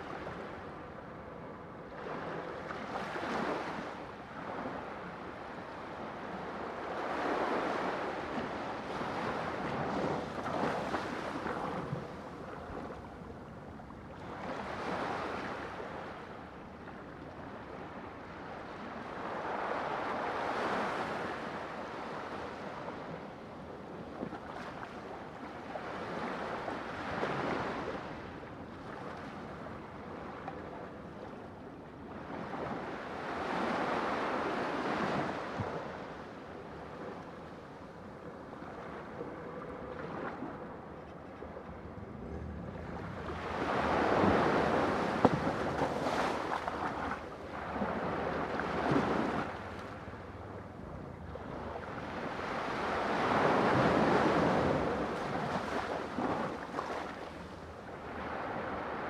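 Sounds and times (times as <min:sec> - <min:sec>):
wind: 0:00.0 - 0:59.0
sea waves breaking: 0:38.4 - 0:59.0.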